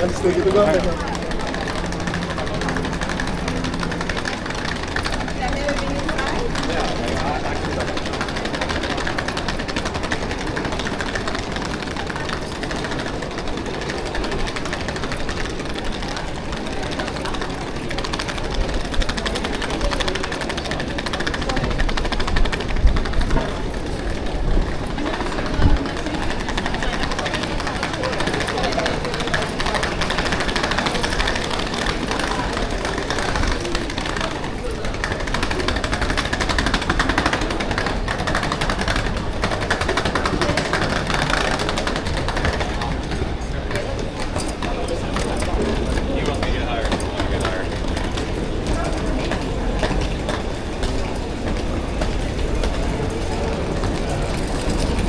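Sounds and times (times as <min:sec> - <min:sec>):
machine rattling: 0:00.0 - 0:24.5
street rumble: 0:00.0 - 0:55.0.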